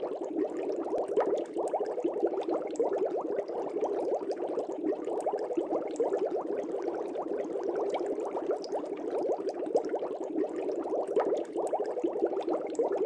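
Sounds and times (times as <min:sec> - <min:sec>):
aquarium air bubbles burbling: 0:00.0 - 0:13.0.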